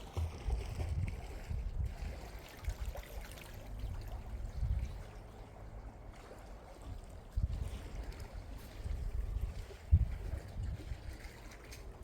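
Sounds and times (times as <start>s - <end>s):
wind buffeting microphone: 0.0s - 2.4s, 3.9s - 5.1s, 6.9s - 12.0s.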